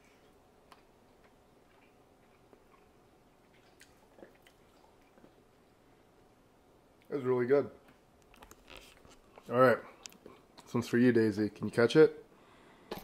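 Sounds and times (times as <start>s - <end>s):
person chewing food: 0.0s - 5.8s, 8.2s - 10.7s.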